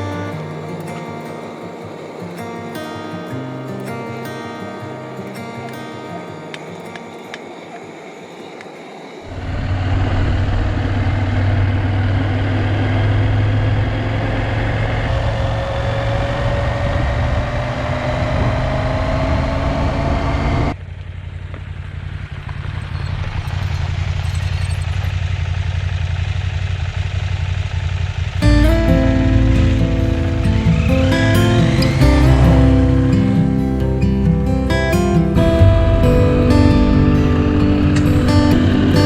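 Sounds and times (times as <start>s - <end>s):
motorcycle engine drone with whine: 9.2s - 39.0s.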